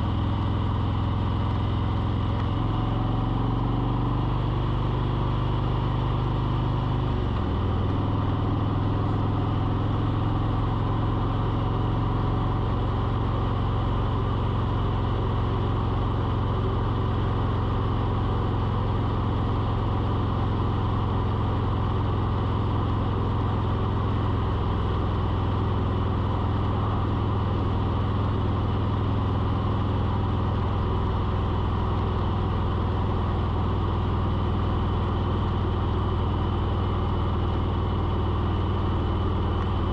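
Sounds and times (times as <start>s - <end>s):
engine humming: 17.7s - 39.9s.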